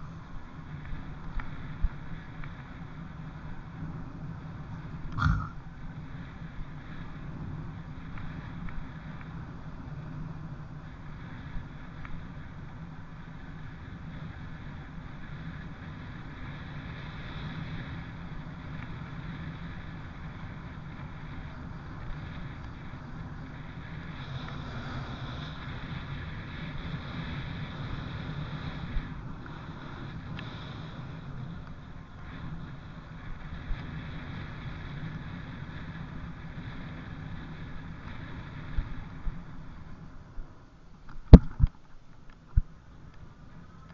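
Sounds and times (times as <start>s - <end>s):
trail bike engine running: 0.0s - 43.9s
wind on microphone: 0.0s - 43.9s.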